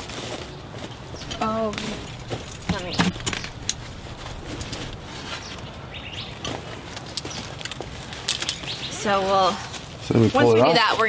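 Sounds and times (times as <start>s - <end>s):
bird chirps: 5.2s - 7.6s, 8.5s - 9.1s.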